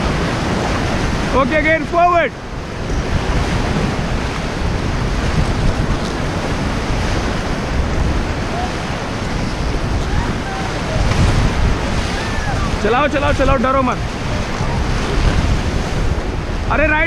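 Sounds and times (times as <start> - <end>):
white-water rapids roaring: 0.0 - 17.0
wind buffeting microphone: 0.0 - 17.0
faint shouts: 10.0 - 11.0, 12.0 - 12.8.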